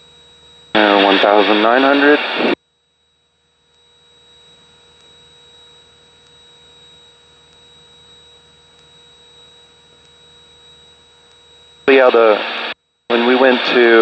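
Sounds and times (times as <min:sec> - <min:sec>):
faint low engine drone: 0:00.0 - 0:02.6
electrical hum: 0:00.0 - 0:14.0
thin high-pitched whine: 0:00.0 - 0:14.0.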